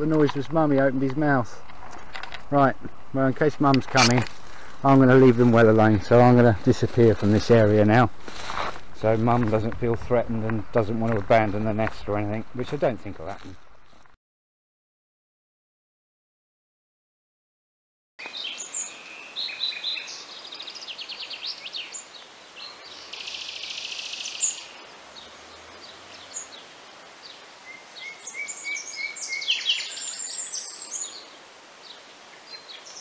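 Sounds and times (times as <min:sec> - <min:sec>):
small birds chirping and trilling: 0:18.2 - 0:33.0.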